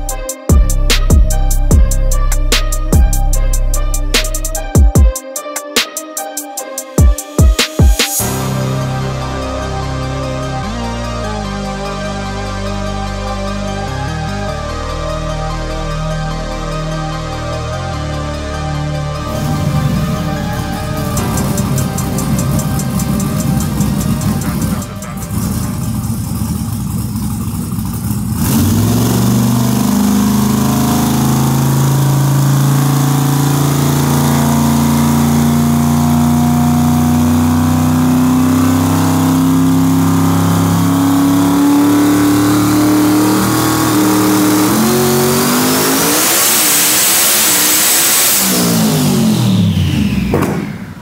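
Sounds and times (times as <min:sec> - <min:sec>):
high turbo whistle: 0:00.0 - 0:26.9, 0:39.9 - 0:51.0
engine revving under load: 0:08.2 - 0:51.0.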